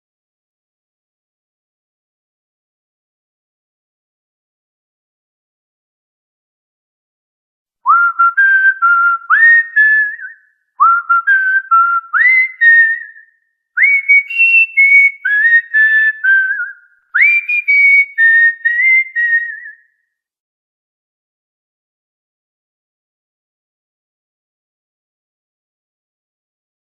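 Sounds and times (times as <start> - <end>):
cockatiel whistling a melody: 7.9 - 13.2, 13.8 - 19.9.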